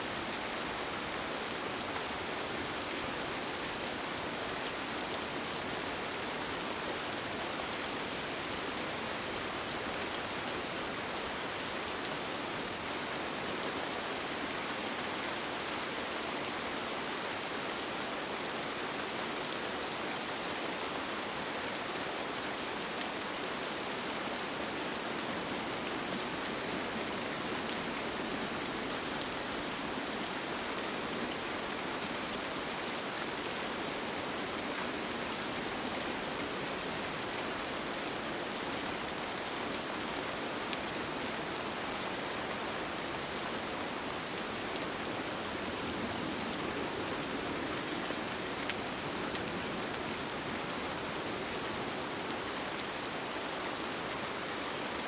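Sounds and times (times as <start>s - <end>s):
rain on a tent: 0.0s - 55.0s.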